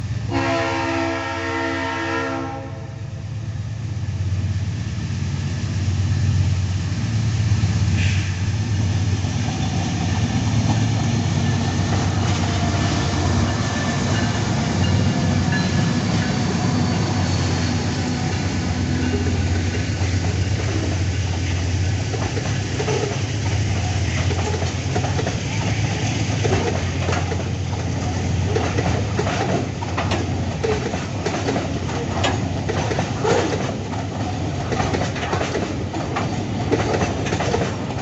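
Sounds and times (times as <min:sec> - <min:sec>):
diesel locomotives rumbling: 0:00.0 - 0:38.0
locomotive horn chord: 0:00.3 - 0:03.2.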